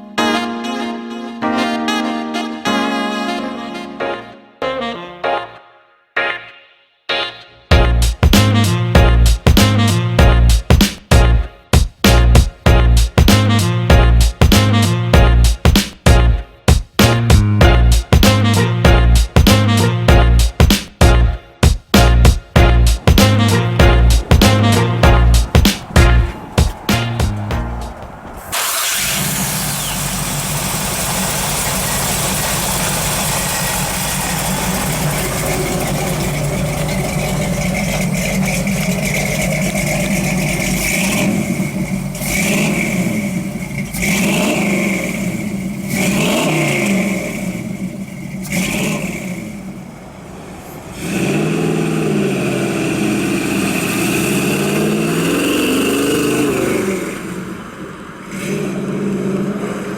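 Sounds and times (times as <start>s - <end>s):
car engine running and revving: 22.0s - 59.9s.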